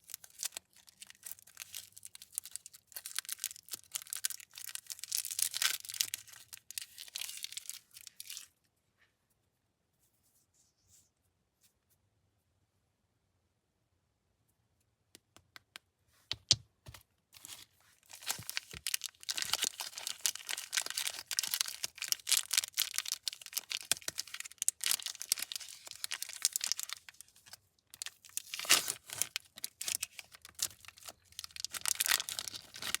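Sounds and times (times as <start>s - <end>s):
plastic wrapper crinkling and tearing: 0.0s - 8.5s, 17.4s - 33.0s.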